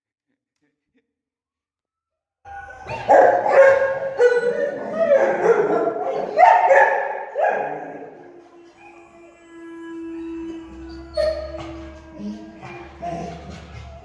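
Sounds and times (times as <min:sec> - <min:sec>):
dog barking: 0:02.5 - 0:08.4.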